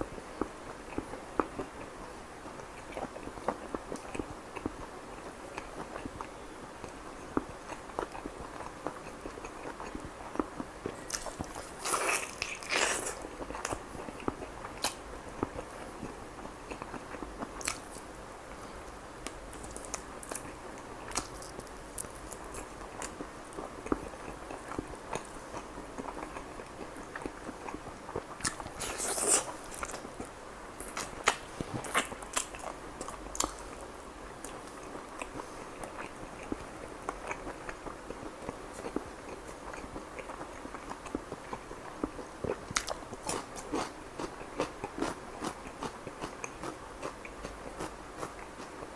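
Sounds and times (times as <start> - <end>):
chewing with wet mouth clicks: 5.5 - 18.1, 19.2 - 48.8
biting and crunching food: 19.2 - 48.9.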